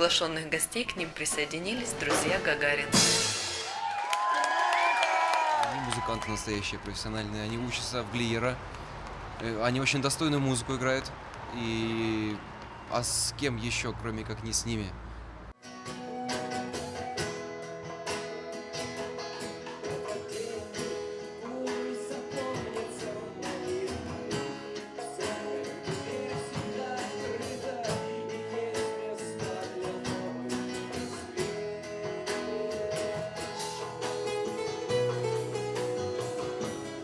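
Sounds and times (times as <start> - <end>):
percussion hits: 1.3 - 4.0
rock band playing live: 2.0 - 3.8, 15.6 - 37.0.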